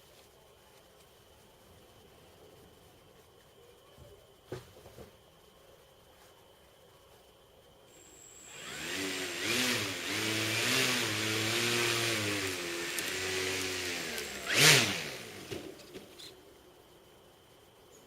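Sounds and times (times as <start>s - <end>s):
electric motor spinning propeller: 7.9s - 16.4s.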